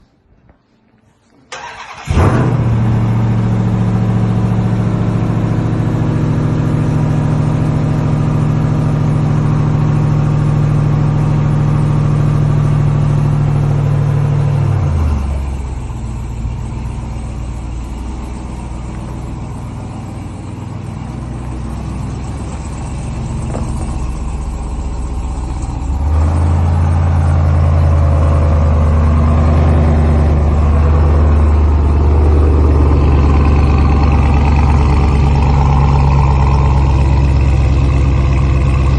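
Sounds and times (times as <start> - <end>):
engine cranking: 1.5 - 2.6
engine fast idle: 1.5 - 38.9.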